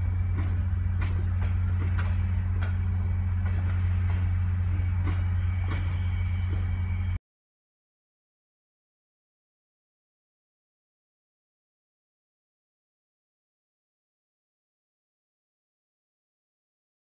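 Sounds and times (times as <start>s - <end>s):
steady low drone: 0.0s - 7.2s
train wheels clicking over rail joints: 0.0s - 7.2s.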